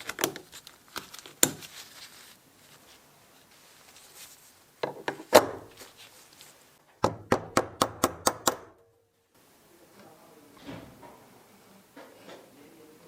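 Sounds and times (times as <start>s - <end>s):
sharp evenly spaced taps: 7.0s - 8.8s
workshop knocks: 7.0s - 8.8s.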